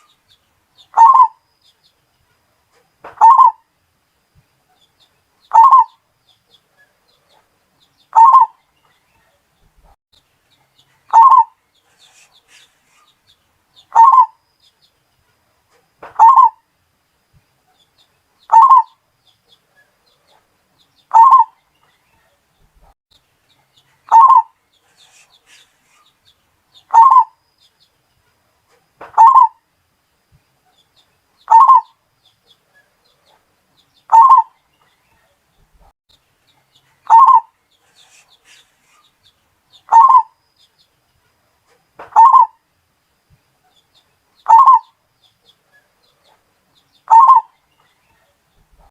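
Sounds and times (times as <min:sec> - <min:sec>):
dove cooing: 0:00.9 - 0:01.4, 0:03.2 - 0:03.6, 0:05.5 - 0:06.0, 0:08.1 - 0:08.6, 0:11.1 - 0:11.6, 0:13.9 - 0:14.4, 0:16.1 - 0:16.6, 0:18.5 - 0:18.9, 0:21.1 - 0:21.6, 0:24.1 - 0:25.7, 0:26.9 - 0:27.4, 0:29.2 - 0:29.6, 0:31.5 - 0:31.9, 0:34.1 - 0:34.5, 0:37.1 - 0:38.7, 0:39.9 - 0:40.3, 0:42.1 - 0:42.6, 0:44.5 - 0:44.9, 0:47.1 - 0:47.5.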